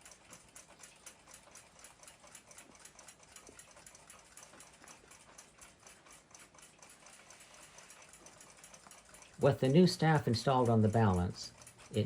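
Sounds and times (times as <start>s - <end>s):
faint fast clock ticking: 0.0s - 12.0s.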